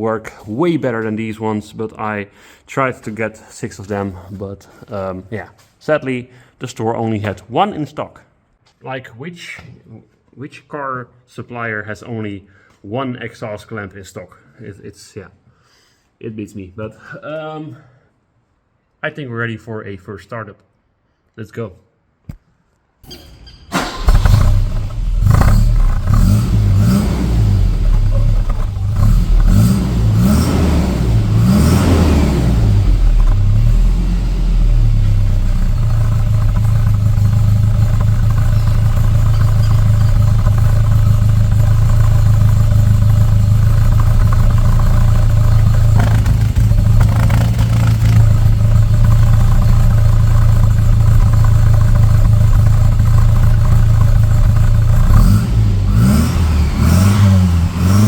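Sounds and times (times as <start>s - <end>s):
car engine revving and idling: 23.8s - 58.0s.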